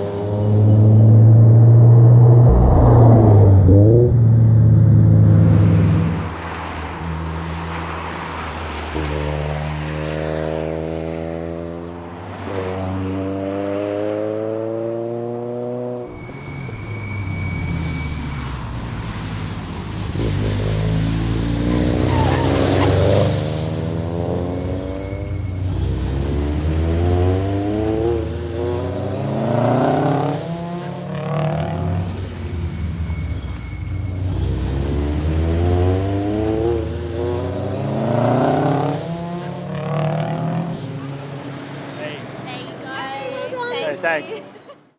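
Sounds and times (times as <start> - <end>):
car engine accelerating through gears: 0.0 - 42.9
low road rumble: 0.0 - 44.9.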